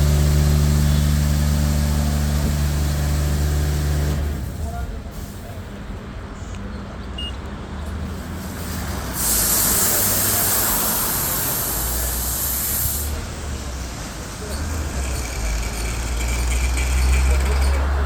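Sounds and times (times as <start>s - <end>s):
car wash spray hissing: 8.1s - 15.7s.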